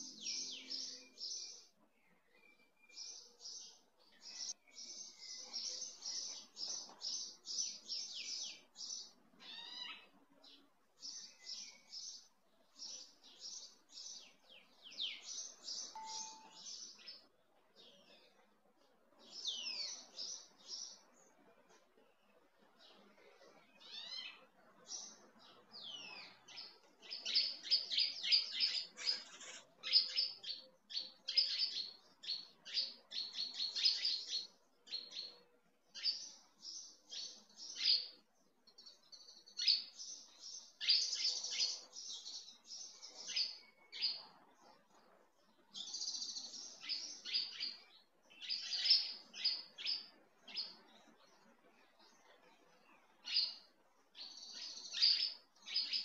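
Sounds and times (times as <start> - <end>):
songbird chirping: 0.0 - 56.0.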